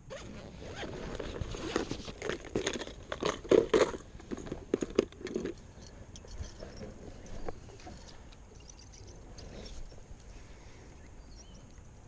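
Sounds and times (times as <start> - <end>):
fishing tackle rummaging: 1.1 - 10.0.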